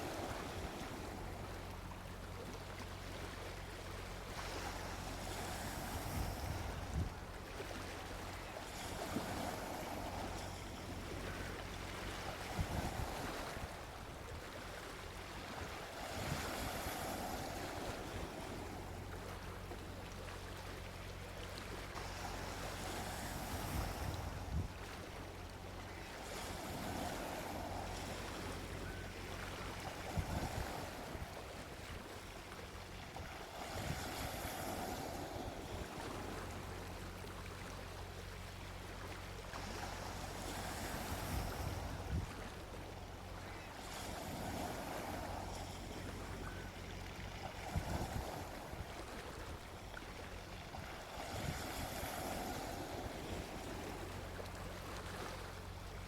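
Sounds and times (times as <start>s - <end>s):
sea waves breaking on beach: 0.0s - 56.0s.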